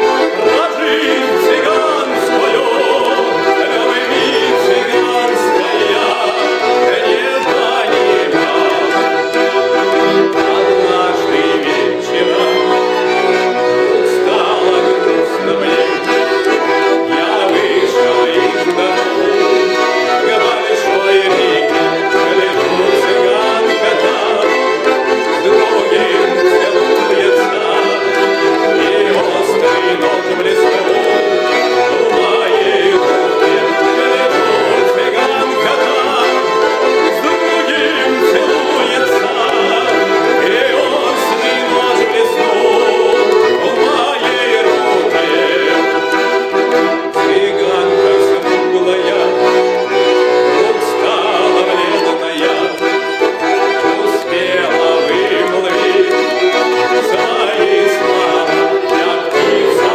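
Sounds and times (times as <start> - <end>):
button accordions playing: 0.0 - 59.9
violin: 0.0 - 59.9.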